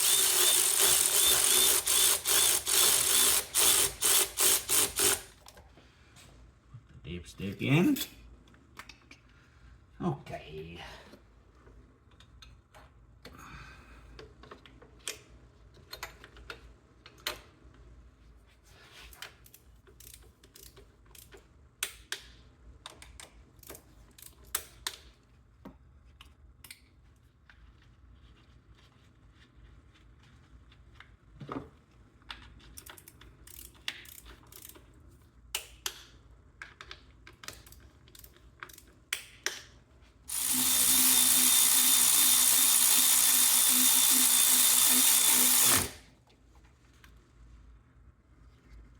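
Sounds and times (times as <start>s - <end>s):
power tool whir: 0.0s - 5.3s, 40.3s - 46.1s
socket ratchet clicking: 0.0s - 5.3s
tools clicking and knocking: 32.2s - 34.9s, 35.6s - 46.0s.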